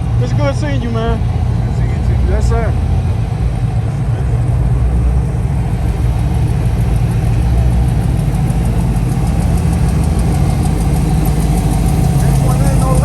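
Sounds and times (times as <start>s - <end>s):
car engine rumbling: 0.0s - 13.0s
fast high ticking: 5.3s - 13.0s.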